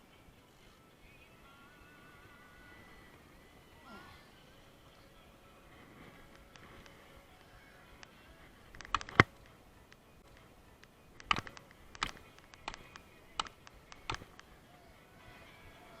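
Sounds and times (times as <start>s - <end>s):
sharp clicks or knocks: 8.7s - 9.4s, 11.2s - 14.4s.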